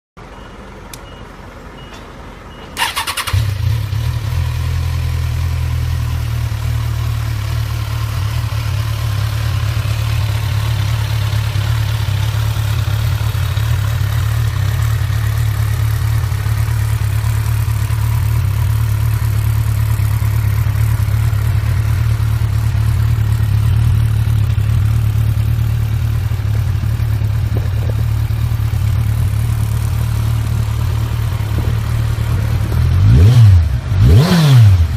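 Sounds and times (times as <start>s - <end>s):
motorcycle electric starter: 2.8s - 3.8s
motorcycle engine idling: 2.8s - 34.2s.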